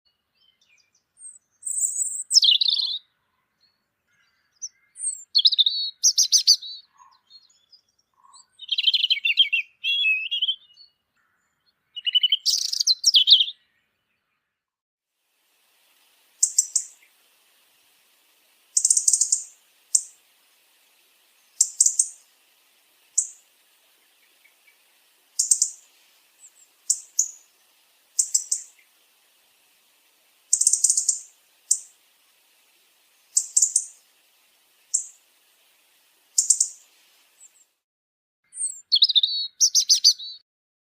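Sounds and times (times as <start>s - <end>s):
robin chirping: 0.1s - 14.3s, 15.9s - 29.6s, 30.2s - 34.1s, 34.8s - 35.2s, 36.3s - 37.6s, 38.5s - 40.4s
faint steady hiss: 0.1s - 14.5s, 15.1s - 37.8s.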